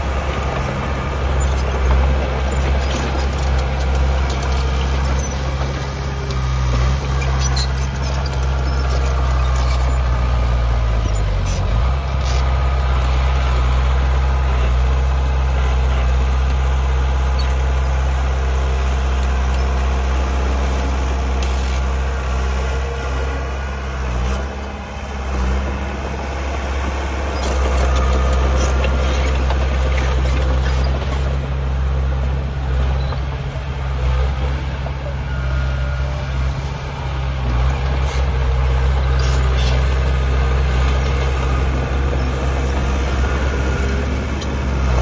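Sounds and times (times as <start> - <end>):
heavy diesel engine running: 0.0 - 45.0.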